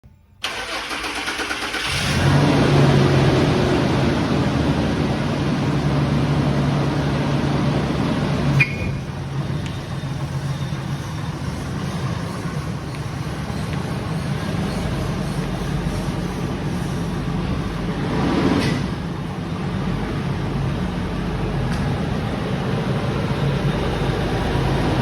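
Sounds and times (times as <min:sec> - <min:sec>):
pickup truck engine starting: 0:00.4 - 0:12.6.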